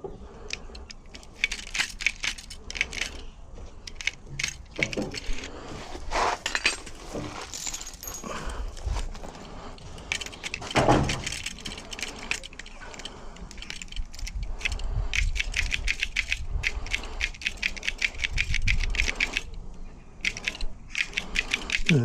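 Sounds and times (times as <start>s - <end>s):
door lock mechanism clicking: 10.0s - 16.4s.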